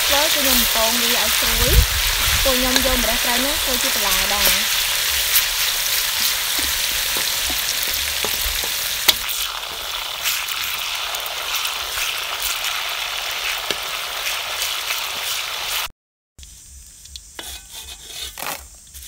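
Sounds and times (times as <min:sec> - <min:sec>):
leaves sizzling in hot oil: 0:00.0 - 0:19.0
metal spatula scraping a wok: 0:17.3 - 0:19.0.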